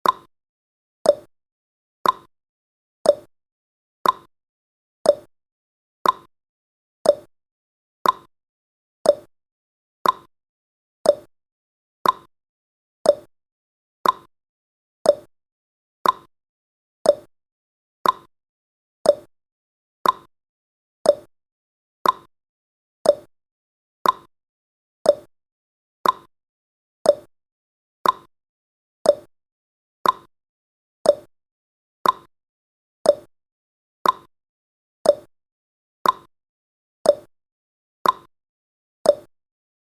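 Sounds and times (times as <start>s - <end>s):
clock ticking: 2.0s - 2.3s, 4.0s - 4.3s, 6.0s - 6.3s, 8.0s - 8.3s, 10.0s - 10.3s, 12.0s - 12.3s, 14.0s - 14.3s, 16.0s - 16.3s, 18.0s - 18.3s, 20.0s - 20.3s, 22.0s - 22.3s, 23.1s - 23.3s, 24.0s - 24.3s, 26.0s - 26.3s, 28.0s - 28.3s, 29.1s - 29.3s, 30.0s - 30.3s, 31.1s - 31.3s, 32.0s - 32.3s, 33.1s - 33.3s, 34.0s - 34.3s, 35.1s - 35.3s, 36.0s - 36.3s, 38.0s - 38.3s, 39.1s - 39.3s.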